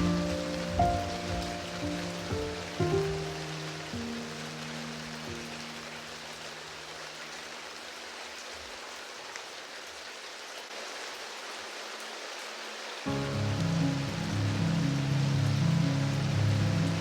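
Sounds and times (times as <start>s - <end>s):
low piano note: 0.0s - 5.9s, 13.1s - 17.0s
steady rain patter: 0.0s - 17.0s.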